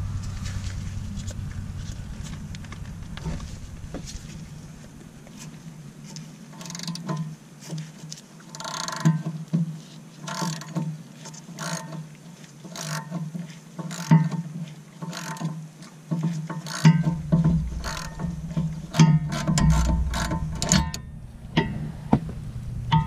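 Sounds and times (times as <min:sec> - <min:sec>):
socket ratchet clicking: 0:06.6 - 0:07.1, 0:08.5 - 0:09.1, 0:11.6 - 0:12.0, 0:12.7 - 0:13.1, 0:15.1 - 0:15.5, 0:16.6 - 0:17.0.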